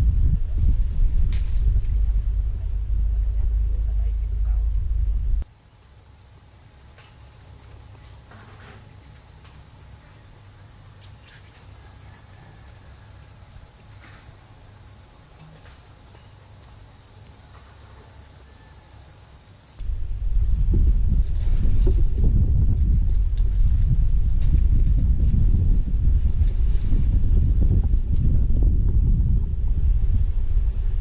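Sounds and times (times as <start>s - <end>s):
insects buzzing: 5.4s - 19.8s.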